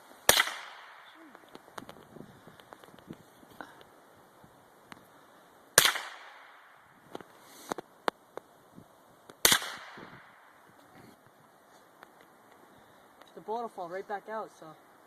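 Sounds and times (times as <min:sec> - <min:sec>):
rifle shots with echo: 0:00.3 - 0:01.2, 0:05.8 - 0:06.8, 0:09.4 - 0:10.6.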